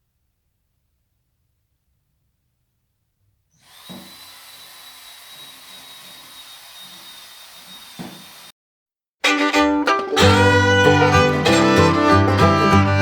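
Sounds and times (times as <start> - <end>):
power drill whining: 3.6 - 8.5.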